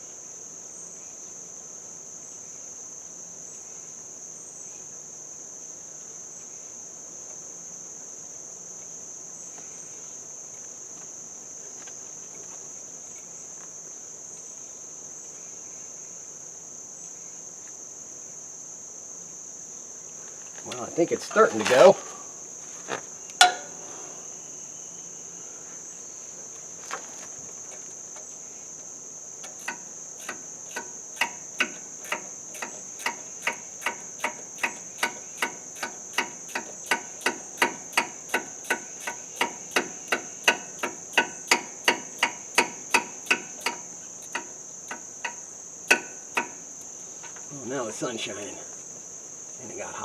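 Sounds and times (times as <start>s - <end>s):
crickets chirring: 0.0s - 50.0s
metal clicks of hand tools: 23.4s - 23.7s, 29.4s - 47.4s.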